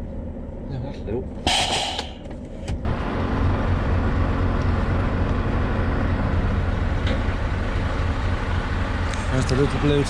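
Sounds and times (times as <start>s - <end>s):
truck engine running: 1.3s - 10.0s.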